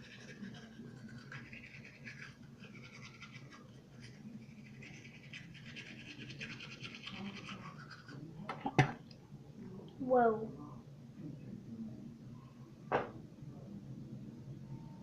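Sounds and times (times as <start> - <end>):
toothbrush scrubbing teeth: 0.0 - 8.3.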